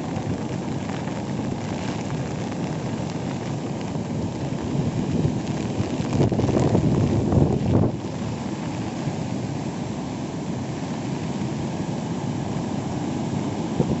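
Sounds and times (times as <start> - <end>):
waterfall roaring: 0.0 - 14.0
wind buffeting microphone: 0.1 - 8.9, 13.7 - 14.0.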